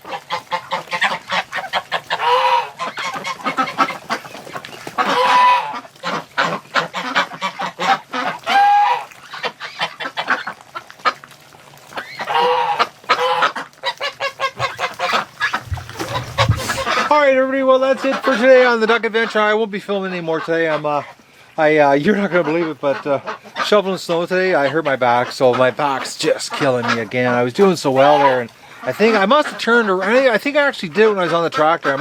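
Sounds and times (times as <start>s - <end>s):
geese honking: 0.0s - 11.2s, 11.8s - 19.5s, 20.1s - 32.0s
ducks quacking and chattering: 0.0s - 32.0s.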